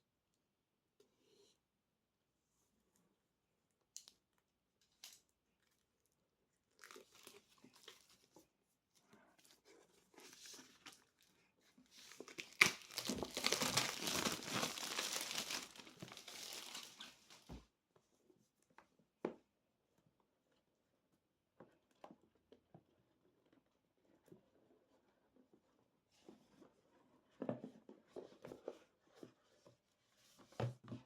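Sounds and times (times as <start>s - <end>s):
packaging rustling and tearing: 11.9s - 17.5s.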